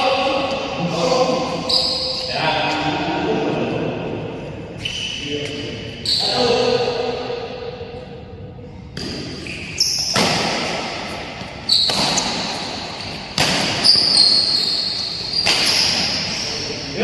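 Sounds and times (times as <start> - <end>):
racket hitting shuttlecock: 8.9 - 16.2.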